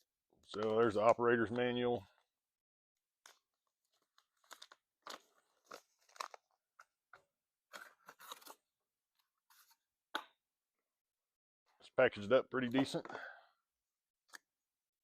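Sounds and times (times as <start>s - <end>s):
packaging crinkling and scraping: 3.2s - 7.0s, 7.7s - 8.7s.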